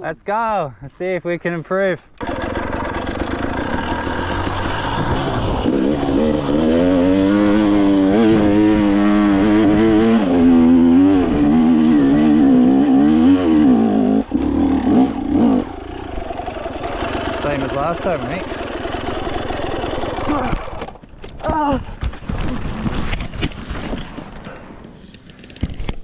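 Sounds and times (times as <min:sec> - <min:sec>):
dirt bike engine revving: 0:02.2 - 0:21.0.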